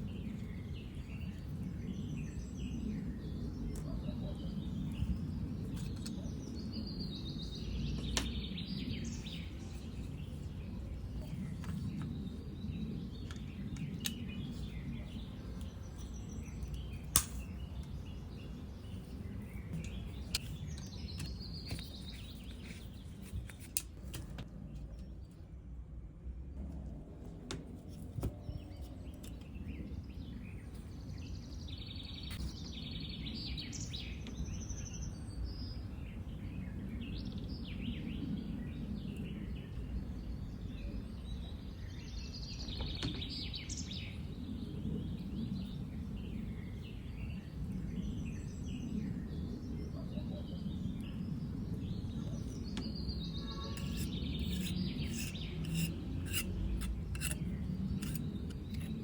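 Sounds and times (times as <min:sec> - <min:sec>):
birds chirping: 0:48.0 - 0:59.0.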